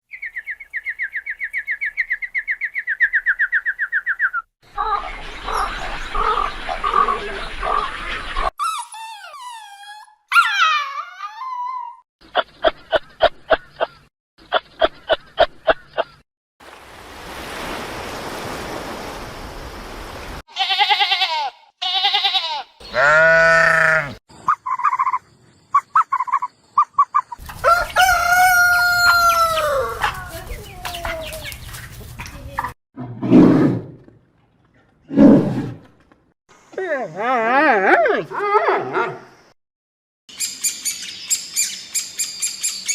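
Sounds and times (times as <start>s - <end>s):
animal and bird calls: 0.1s - 10.6s, 11.2s - 16.2s, 22.8s - 32.8s, 40.3s - 42.9s
rooster crowing: 27.5s - 30.2s.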